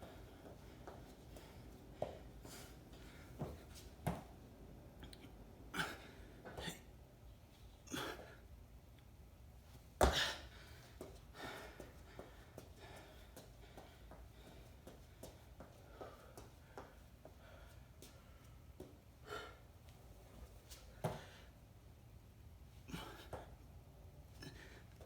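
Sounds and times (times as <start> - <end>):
person breathing hard: 10.0 - 18.6.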